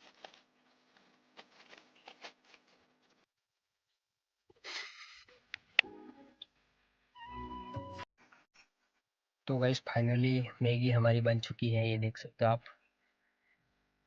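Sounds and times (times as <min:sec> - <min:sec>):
soft rustling: 0:00.0 - 0:03.3.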